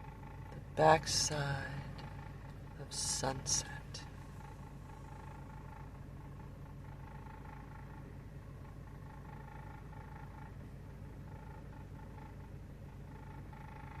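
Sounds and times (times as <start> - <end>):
faint high steady tone: 0.0 - 5.8
low mechanical hum: 0.0 - 14.0.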